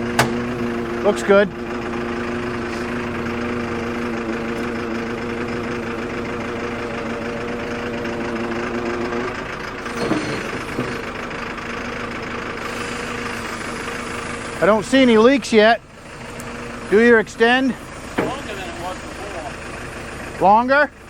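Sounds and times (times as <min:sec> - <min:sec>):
excavator diesel engine running: 0:00.0 - 0:21.0
short knock: 0:00.2 - 0:00.4.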